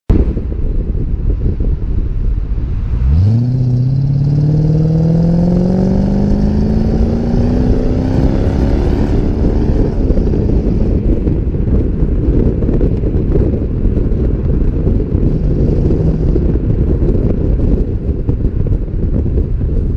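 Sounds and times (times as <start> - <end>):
wind buffeting microphone: 0.1 - 19.9
car engine accelerating hard: 2.6 - 11.9, 14.6 - 17.9.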